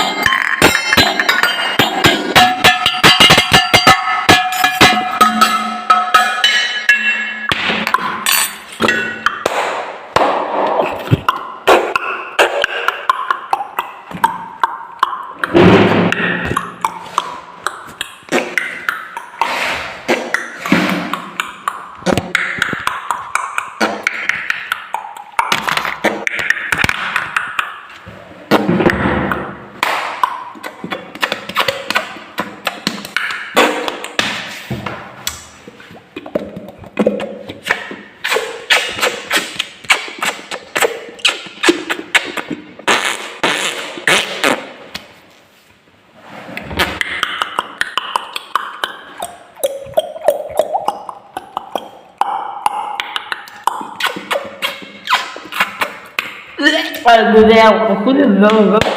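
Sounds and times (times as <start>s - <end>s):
glasses tapped rhythmically: 0.0s - 9.5s, 11.1s - 19.5s, 20.2s - 27.9s.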